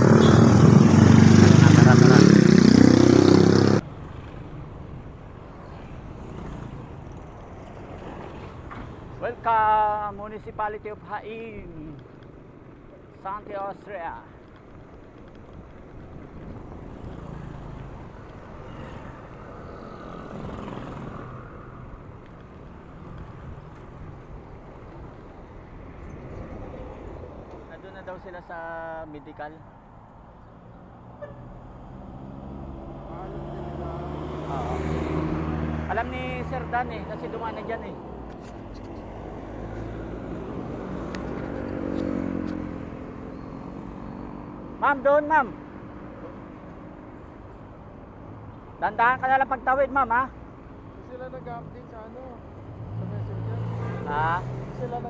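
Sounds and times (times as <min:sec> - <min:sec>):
vehicle engine passing: 0:00.0 - 0:03.8, 0:31.7 - 0:38.0
road rumble: 0:00.0 - 0:55.0
traffic: 0:00.0 - 0:55.0.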